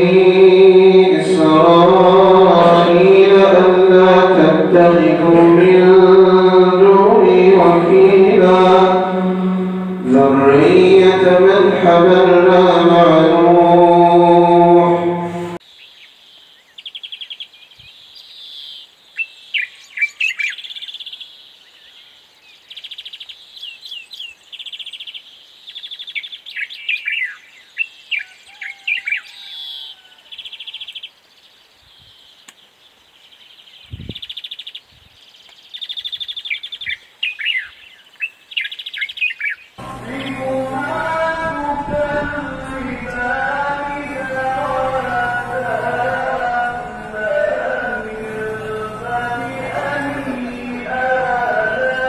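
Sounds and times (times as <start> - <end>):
birds chirping and trilling: 0.0 - 52.0.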